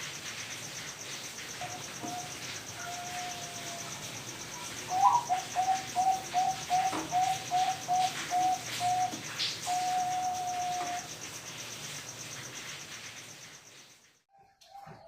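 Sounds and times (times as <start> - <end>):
dove cooing: 1.6 - 4.0, 4.6 - 11.1.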